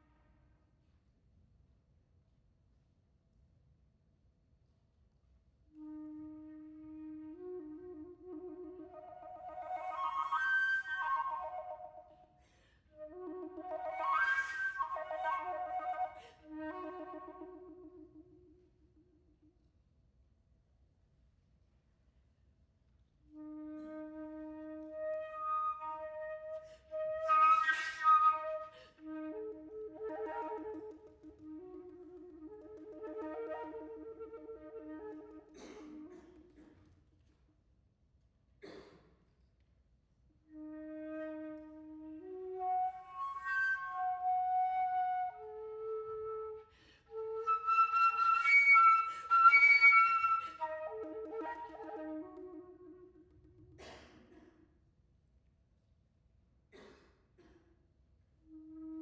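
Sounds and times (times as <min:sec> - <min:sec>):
solo flute: 0:05.7 - 0:19.5, 0:23.3 - 0:36.7, 0:40.4 - 0:53.8, 0:58.4 - 0:59.0.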